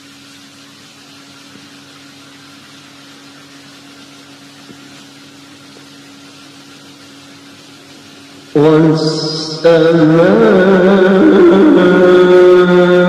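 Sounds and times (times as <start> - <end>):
steady hiss: 0.0 - 12.6
low hum: 6.6 - 13.0.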